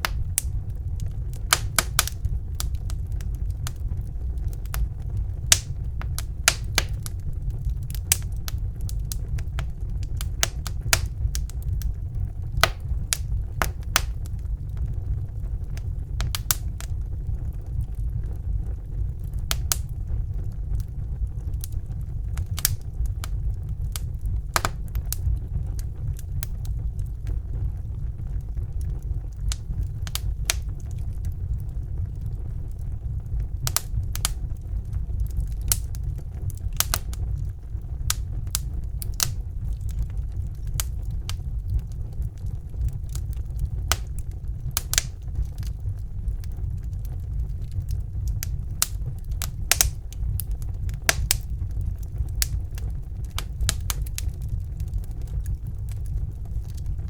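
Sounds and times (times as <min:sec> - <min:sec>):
burning logs crackling and popping: 0:00.0 - 0:57.0
fire flames rumbling: 0:00.0 - 0:57.0.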